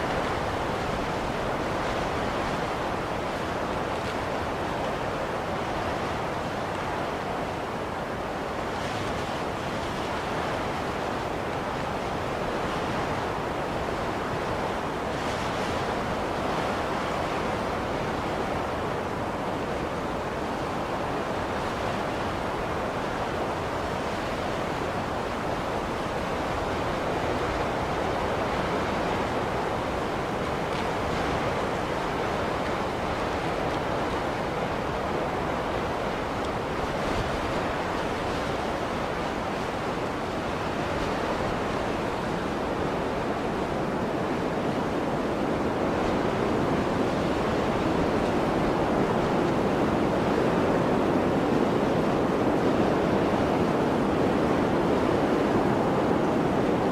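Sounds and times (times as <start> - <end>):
blizzard wind: 0.0 - 56.9.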